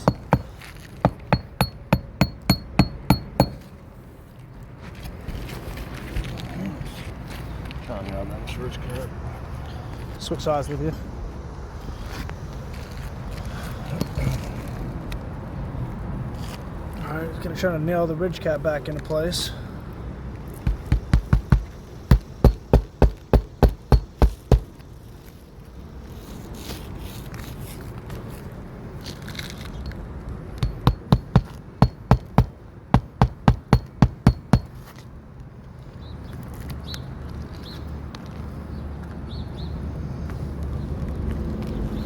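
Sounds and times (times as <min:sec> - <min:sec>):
hammer driving nails: 0:00.0 - 0:03.7, 0:20.7 - 0:24.7, 0:30.6 - 0:34.8.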